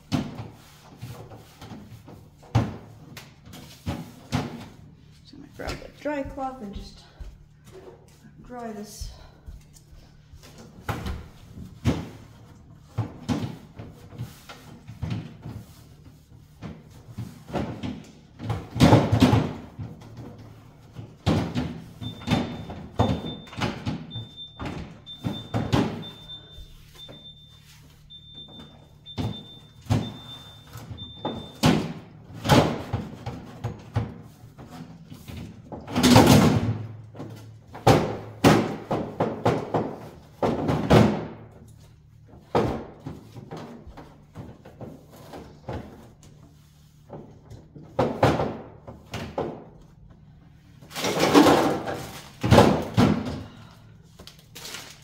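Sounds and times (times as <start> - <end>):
freezer alarm beeping: 21.7 - 33.2.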